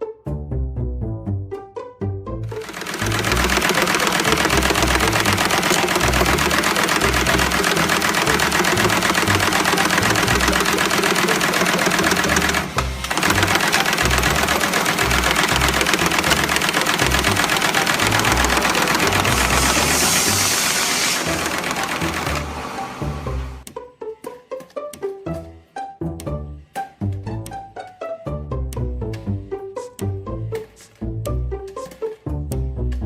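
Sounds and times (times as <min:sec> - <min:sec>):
factory machine clattering: 0:02.6 - 0:23.2.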